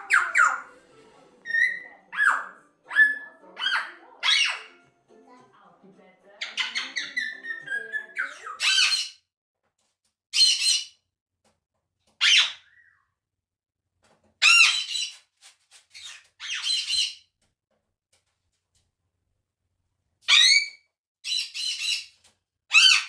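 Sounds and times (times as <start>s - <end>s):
parrot squawking: 0.0s - 0.8s, 1.4s - 4.8s, 6.4s - 9.2s, 10.4s - 11.0s, 12.2s - 13.0s, 14.4s - 15.2s, 16.0s - 17.2s, 20.2s - 22.1s, 22.7s - 23.0s.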